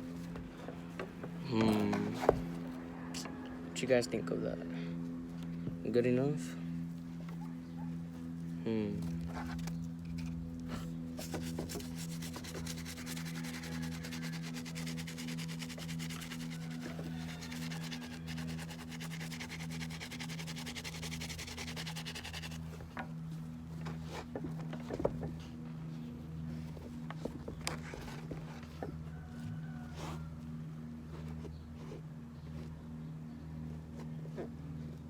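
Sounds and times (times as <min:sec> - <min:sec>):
scrubbing a sneaker: 0:11.0 - 0:22.9.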